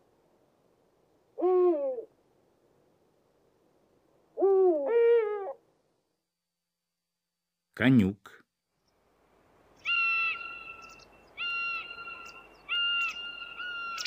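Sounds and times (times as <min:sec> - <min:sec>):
owl calling: 0:04.4 - 0:05.6, 0:09.8 - 0:14.0.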